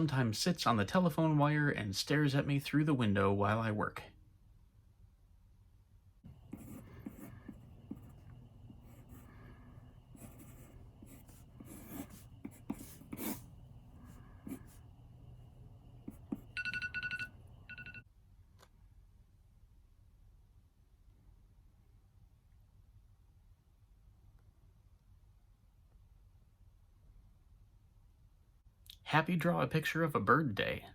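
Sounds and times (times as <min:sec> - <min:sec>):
pencil scratching on paper: 0:06.3 - 0:14.8, 0:16.0 - 0:16.6
electronic timer beeps: 0:16.5 - 0:18.0.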